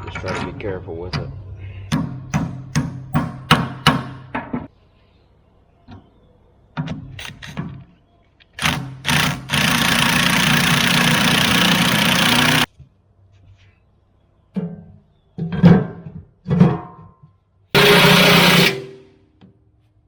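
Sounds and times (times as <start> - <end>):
skid steer running loud: 8.6 - 12.7, 17.8 - 18.9.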